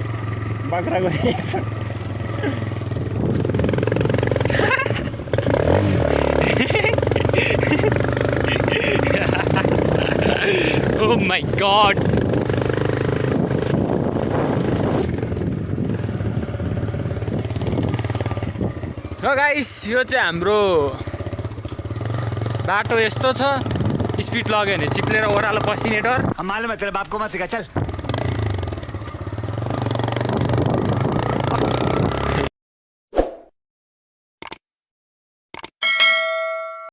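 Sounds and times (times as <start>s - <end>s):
motorcycle engine running: 0.0s - 26.3s, 27.8s - 32.5s
brief clicks: 34.4s - 34.6s, 35.5s - 35.8s.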